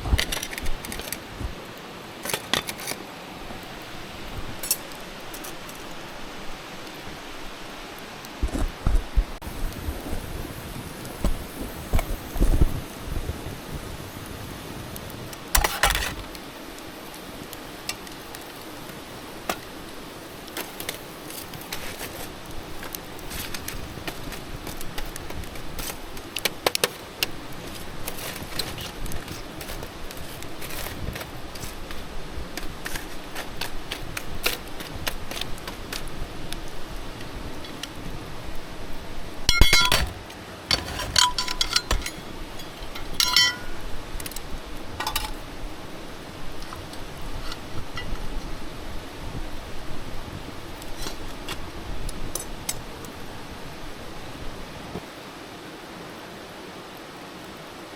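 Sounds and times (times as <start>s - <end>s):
metal camp gear clinking: 2.2s - 3.1s, 3.9s - 6.0s, 15.4s - 16.4s, 39.5s - 45.5s.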